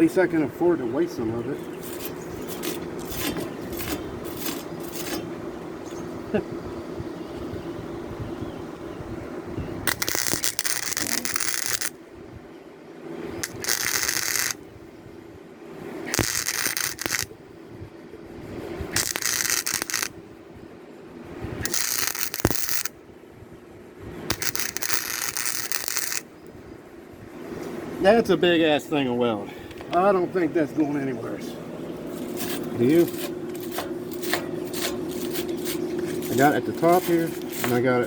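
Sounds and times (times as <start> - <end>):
steady low hum: 0.0 - 38.0
welder arc crackling: 1.8 - 5.3, 9.8 - 12.0, 13.4 - 14.7, 16.0 - 17.4, 18.9 - 20.2, 21.6 - 23.0, 24.3 - 26.3, 32.2 - 38.0.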